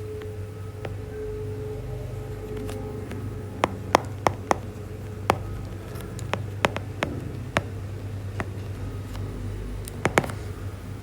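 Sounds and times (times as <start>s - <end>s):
low room hum: 0.0s - 11.0s
pen tapping on a board: 3.6s - 7.8s, 8.4s - 8.8s, 9.9s - 10.5s.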